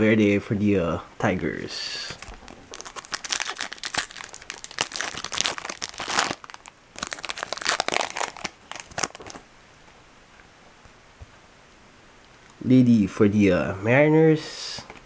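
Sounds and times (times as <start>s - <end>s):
foil wrapper crinkling: 2.2s - 9.4s.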